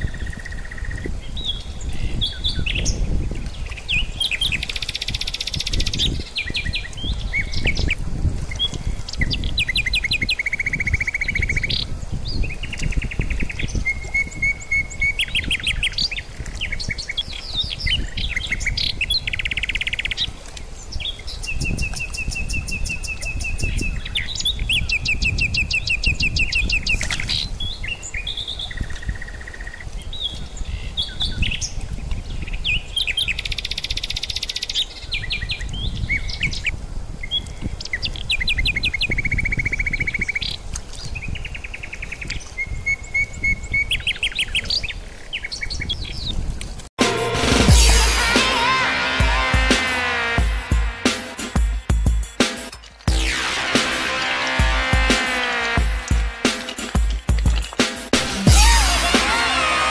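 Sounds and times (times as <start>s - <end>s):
songbirds singing and chirping: 0.0s - 46.6s.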